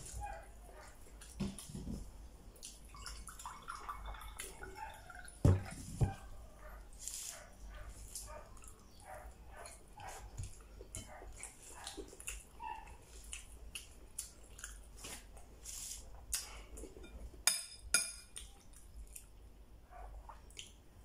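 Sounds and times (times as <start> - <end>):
man chewing and lip-smacking: 10.4 - 17.0, 18.3 - 19.5.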